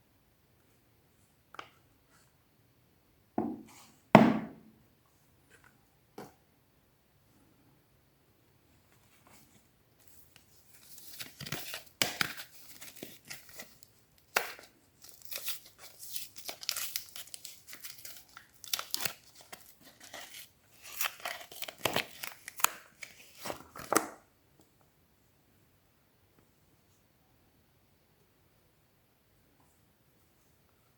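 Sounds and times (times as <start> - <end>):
wrapper tearing and crinkling: 10.8 - 23.9.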